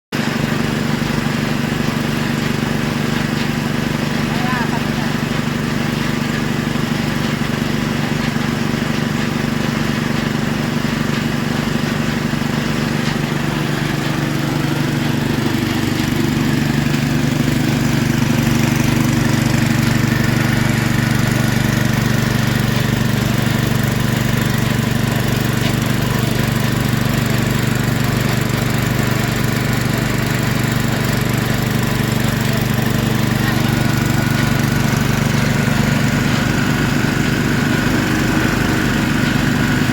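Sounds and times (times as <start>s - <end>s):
drilling machine engine running: 0.2s - 39.9s.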